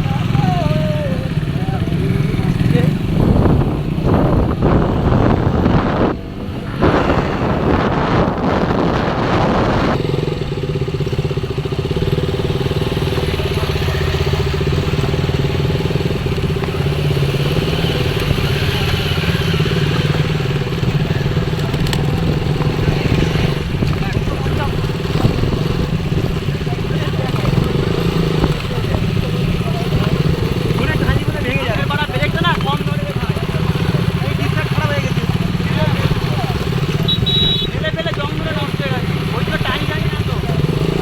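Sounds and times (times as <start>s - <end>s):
motorcycle engine drone: 0.0s - 41.0s
loud rushing noise: 1.4s - 10.6s.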